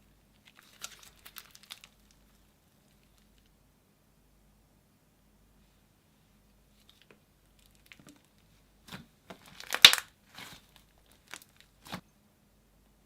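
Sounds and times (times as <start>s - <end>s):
slime squished by hand: 7.6s - 12.0s.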